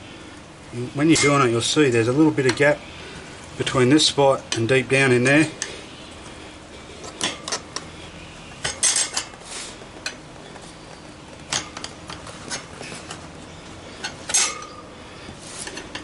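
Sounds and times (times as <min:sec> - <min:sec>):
metal tyre levers clinking on rim: 0:07.0 - 0:07.9, 0:08.6 - 0:16.0.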